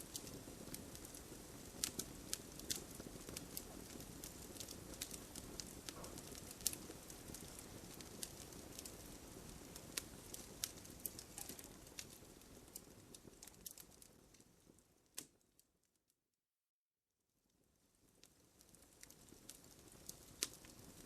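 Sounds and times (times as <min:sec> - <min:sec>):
low rush of flames: 0:00.0 - 0:14.8
campfire crackling and popping: 0:00.0 - 0:15.6, 0:18.0 - 0:21.0.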